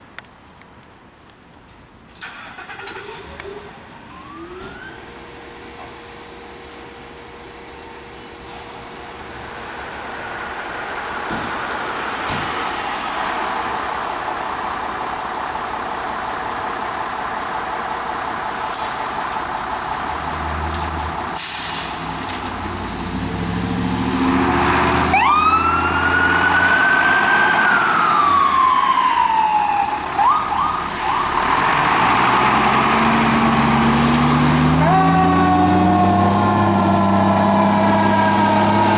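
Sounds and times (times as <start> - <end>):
heavy diesel engine: 2.2 - 38.9
electronic siren wailing: 4.1 - 5.1, 25.1 - 31.4
siren sweeping up and down: 4.1 - 5.3, 24.0 - 38.9.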